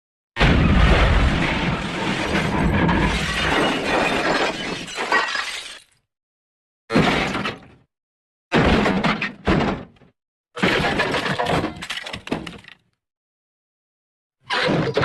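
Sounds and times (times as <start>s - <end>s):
debris smashing and shattering: 0.4s - 6.0s.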